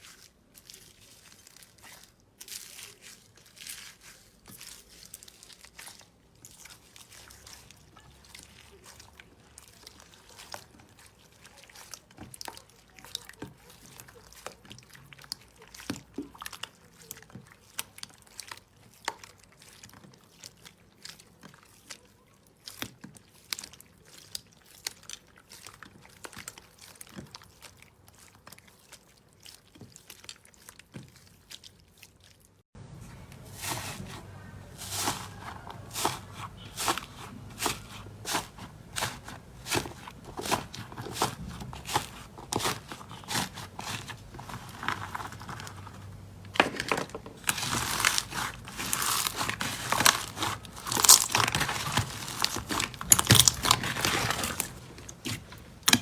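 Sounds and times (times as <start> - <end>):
slime squishing and popping: 47.4 - 56.0.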